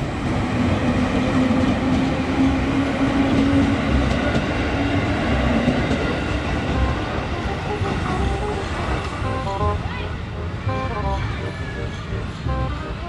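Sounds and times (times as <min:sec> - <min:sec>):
train wheels rumbling on rails: 0:00.0 - 0:06.6.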